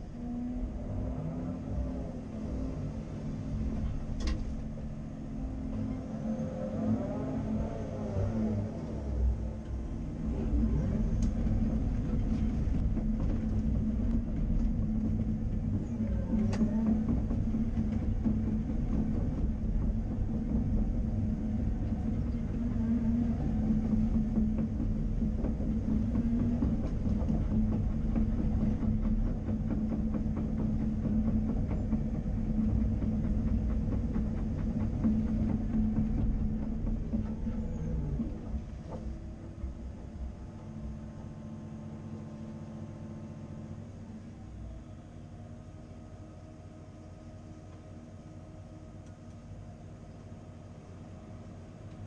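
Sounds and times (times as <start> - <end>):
excavator diesel engine running: 0.0 - 52.0
machine knocks and clatters: 9.9 - 40.9.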